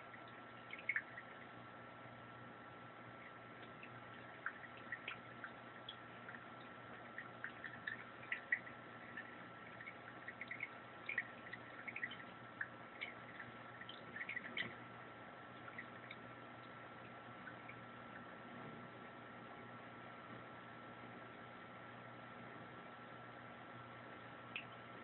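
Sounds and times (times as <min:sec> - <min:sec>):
water splashes and drips in sink: 0:00.0 - 0:01.6, 0:03.1 - 0:14.9, 0:15.5 - 0:18.3.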